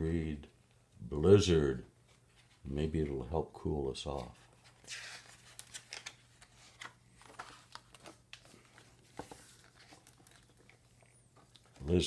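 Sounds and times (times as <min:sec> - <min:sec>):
paper rustling: 0:02.0 - 0:03.2, 0:04.1 - 0:12.0.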